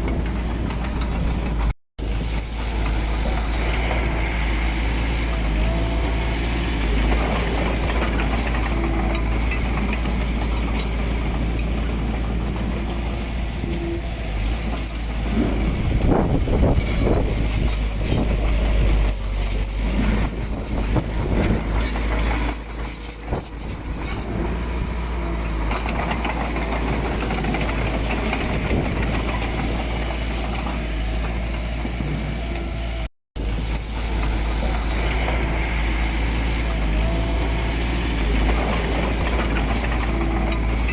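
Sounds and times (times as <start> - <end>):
heavy diesel machinery running: 0.0 - 40.9
rattling and scraping: 14.4 - 32.2.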